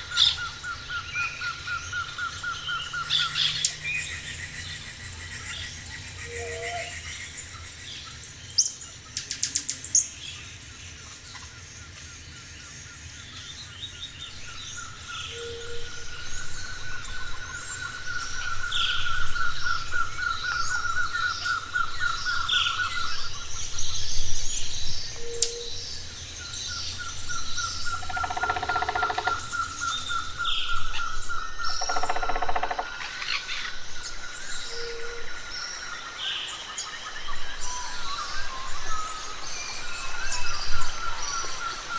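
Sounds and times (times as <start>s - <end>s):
bird low hoot: 6.2s - 7.0s, 27.8s - 33.4s, 34.7s - 35.3s
birds chirping: 13.2s - 41.9s.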